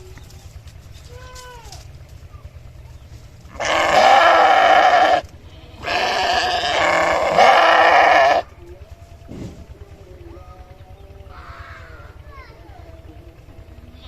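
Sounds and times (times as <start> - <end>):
sheep bleating: 3.5 - 8.6.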